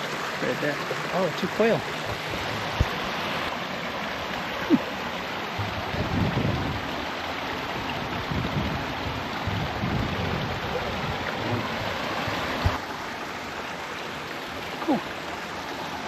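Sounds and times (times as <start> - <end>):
creek running over rocks: 0.0 - 16.0.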